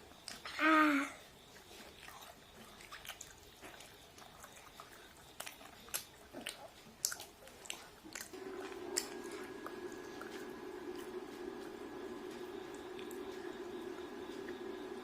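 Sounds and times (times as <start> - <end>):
steady low hum: 0.0 - 15.0
chewing with mouth smacks: 1.3 - 11.6.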